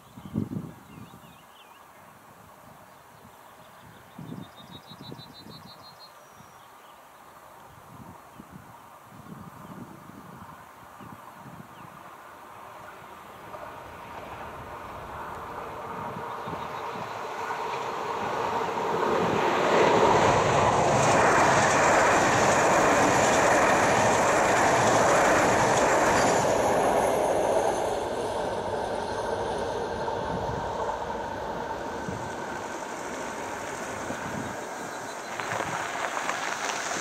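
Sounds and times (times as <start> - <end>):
electric train passing at speed: 11.3 - 37.0
car tyres crunching on gravel: 35.2 - 37.0.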